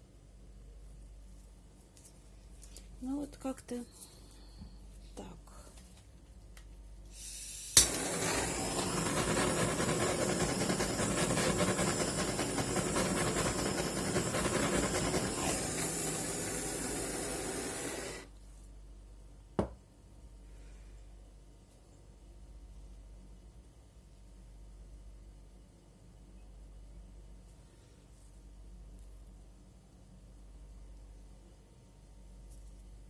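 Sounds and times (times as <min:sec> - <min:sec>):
heat gun blowing air: 0:07.1 - 0:18.3.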